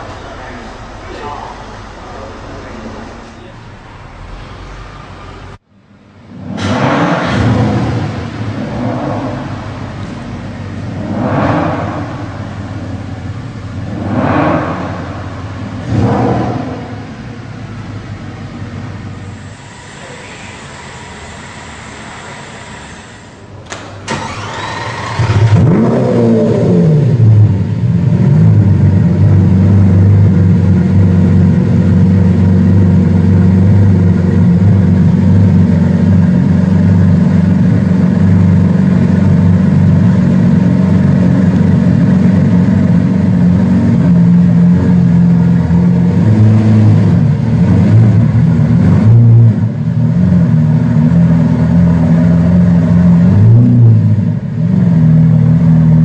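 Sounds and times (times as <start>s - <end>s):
car engine revving and idling: 0.0s - 56.0s
starter motor whirring: 21.7s - 25.7s.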